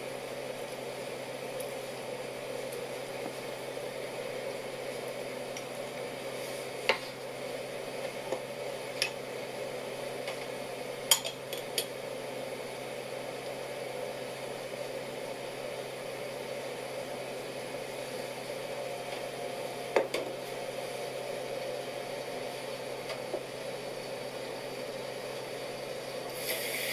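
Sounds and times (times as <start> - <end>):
steady kitchen hiss: 0.0 - 26.9
utensils clinking against a pot: 11.1 - 11.9.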